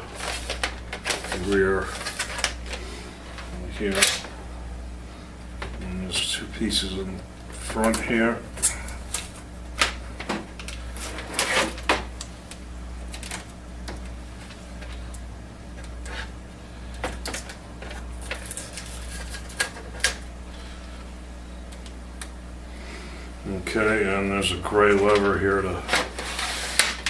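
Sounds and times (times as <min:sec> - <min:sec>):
packing rustles: 0:00.0 - 0:04.2
steady low hum: 0:00.0 - 0:27.0.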